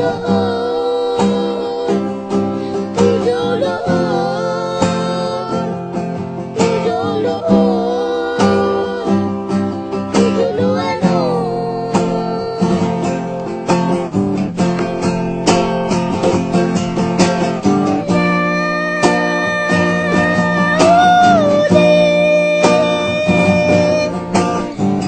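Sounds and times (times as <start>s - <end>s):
acoustic guitar plucked and strummed: 0.0s - 25.0s
bending melody line: 7.1s - 25.0s.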